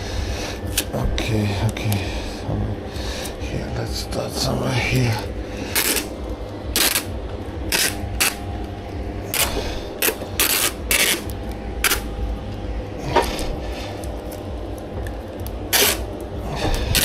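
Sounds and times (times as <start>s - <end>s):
steady low hum: 0.0s - 17.0s
adhesive tape pulled off roll: 5.7s - 8.4s, 9.3s - 12.1s, 15.4s - 16.2s.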